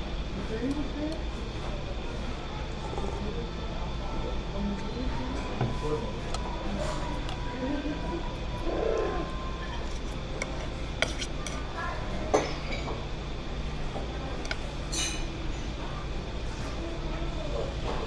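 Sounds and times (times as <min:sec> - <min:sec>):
steady low hum: 0:00.0 - 0:18.0
faint background voices: 0:00.2 - 0:18.0
dishes and cutlery clinking: 0:12.3 - 0:13.0, 0:14.8 - 0:15.4.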